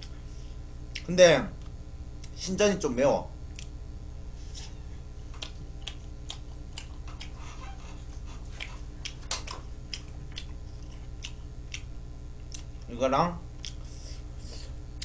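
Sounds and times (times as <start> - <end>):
person chewing food: 3.5 - 3.8, 4.4 - 12.9, 13.6 - 15.0
wet mouth clicks: 8.5 - 12.7.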